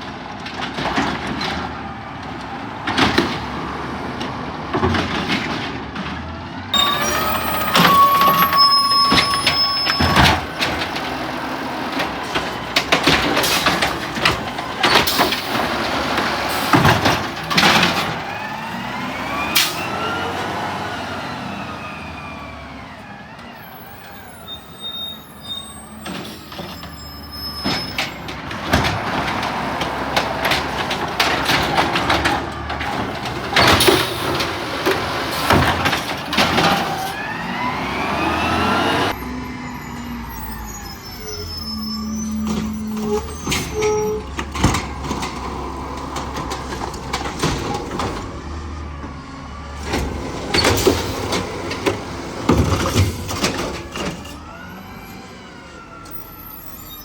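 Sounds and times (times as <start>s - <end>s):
garbage truck engine revving: 0.2s - 57.0s
short steady tone: 6.8s - 10.2s.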